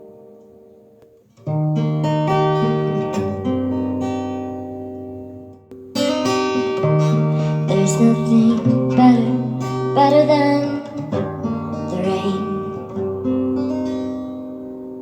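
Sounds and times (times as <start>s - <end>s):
acoustic guitar strumming: 1.2s - 15.0s
person singing: 7.4s - 11.2s, 11.9s - 12.8s.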